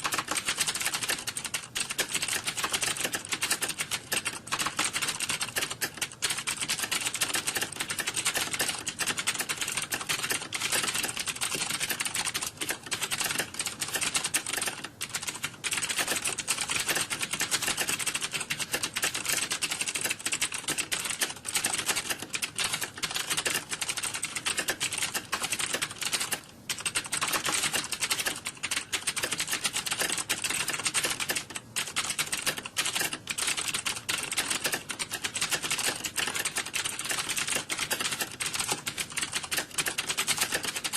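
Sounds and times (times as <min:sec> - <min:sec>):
fast keyboard typing: 0:00.0 - 0:40.9.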